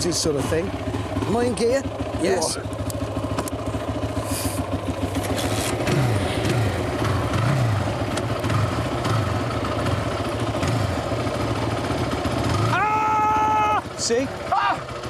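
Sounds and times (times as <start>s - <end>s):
quad engine revving: 4.2s - 11.5s, 12.2s - 12.8s.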